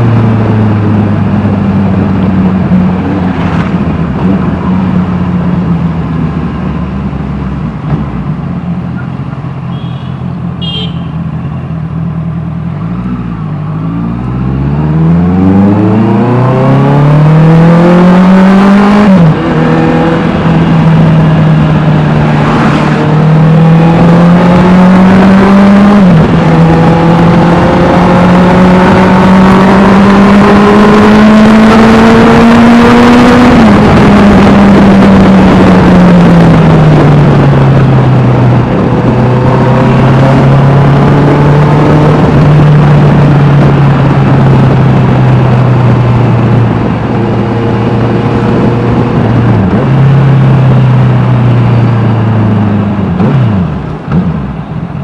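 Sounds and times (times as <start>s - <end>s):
motorcycle engine accelerating: 12.1s - 55.0s.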